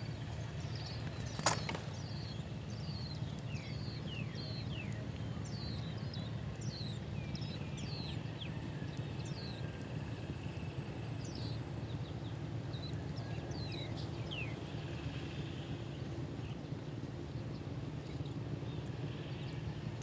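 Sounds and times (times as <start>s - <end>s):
small birds chirping: 0.4s - 8.0s.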